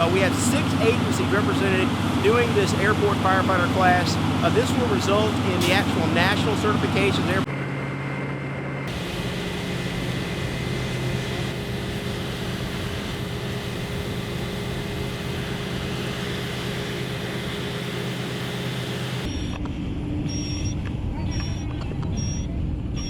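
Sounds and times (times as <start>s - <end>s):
heavy machinery drone: 0.0s - 19.6s
faint high whine: 8.9s - 19.6s.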